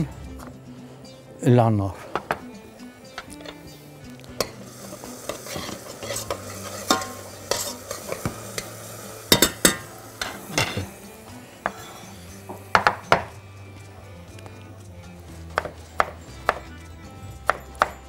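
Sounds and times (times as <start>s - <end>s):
metal spoon scraping a pot: 3.1s - 3.8s, 4.4s - 10.9s
onion and garlic sizzling in oil: 3.1s - 18.0s.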